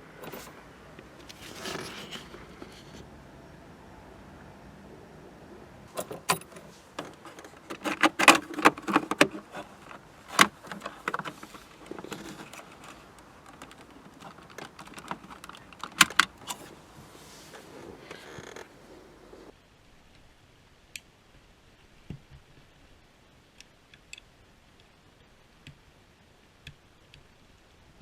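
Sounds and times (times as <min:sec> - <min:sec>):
metal tools clinking: 0:00.2 - 0:00.6, 0:05.9 - 0:16.9.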